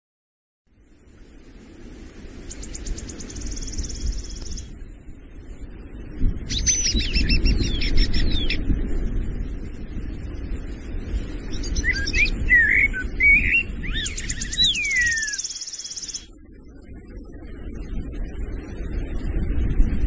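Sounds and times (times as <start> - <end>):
low rumbling ambience: 0.7 - 20.0
fast high bird trill: 11.5 - 16.3
falling whistled bird notes: 11.6 - 16.3.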